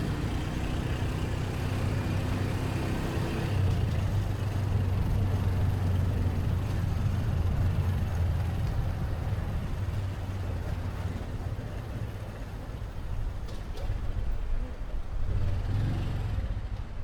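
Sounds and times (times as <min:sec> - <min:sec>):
road and traffic noise: 0:00.0 - 0:17.0.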